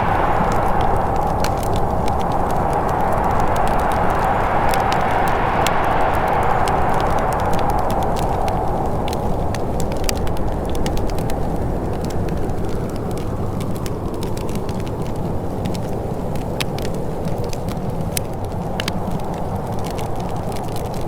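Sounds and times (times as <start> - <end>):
wind whooshing: 0.0 - 14.2
wood fire crackling and popping: 0.0 - 21.0.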